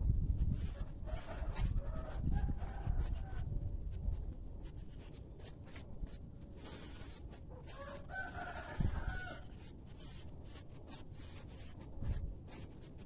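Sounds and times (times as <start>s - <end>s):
rooster crowing: 1.1s - 3.5s, 7.7s - 9.5s.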